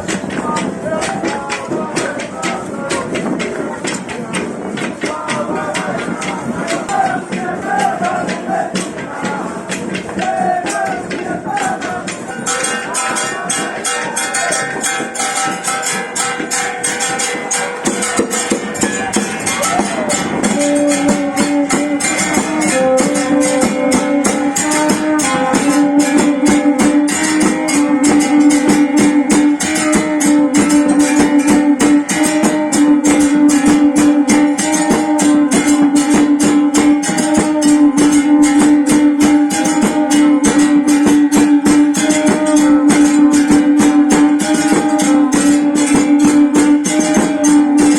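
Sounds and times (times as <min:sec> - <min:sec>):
fast percussion beat: 0:00.0 - 0:47.9
melody of long held notes: 0:12.3 - 0:47.9.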